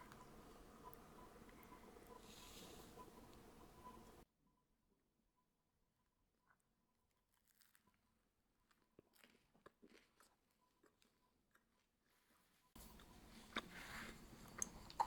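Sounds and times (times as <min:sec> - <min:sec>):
chewing food: 0:00.0 - 0:04.2, 0:07.4 - 0:12.0, 0:12.8 - 0:15.0.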